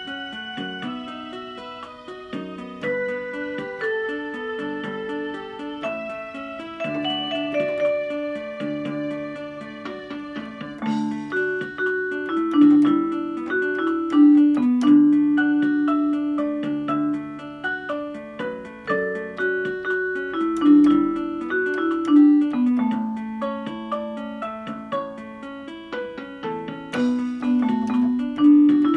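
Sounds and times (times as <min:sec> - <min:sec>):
electronic keyboard melody: 0:00.0 - 0:28.9
keyboard demo accompaniment: 0:00.0 - 0:28.9.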